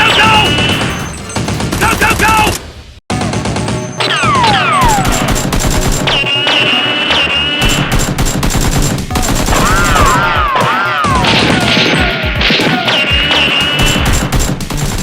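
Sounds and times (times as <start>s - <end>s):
background music: 3.1s - 15.0s
automatic gunfire sound effects: 3.2s - 15.0s.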